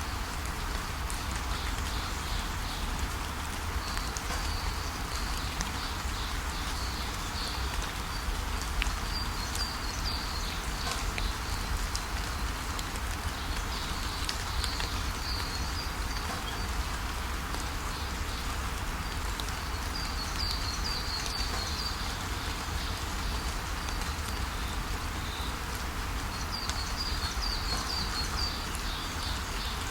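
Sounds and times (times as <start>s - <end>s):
steady rainfall: 0.0s - 29.9s
birds chirping: 26.3s - 29.9s.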